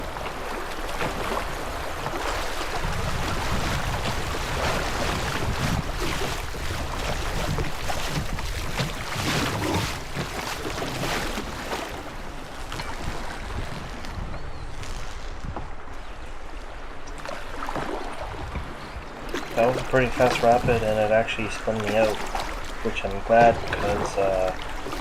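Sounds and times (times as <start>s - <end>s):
wind rumbling on microphone: 0.0s - 25.0s
river rapids rushing and splashing: 19.3s - 25.0s.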